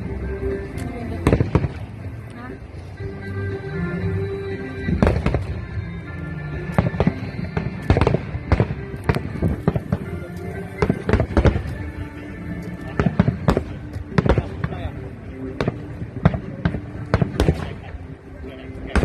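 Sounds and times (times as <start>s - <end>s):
music playing: 0.0s - 19.0s
fireworks bangs: 4.9s - 5.6s, 6.6s - 11.8s, 12.9s - 14.9s, 15.6s - 17.9s.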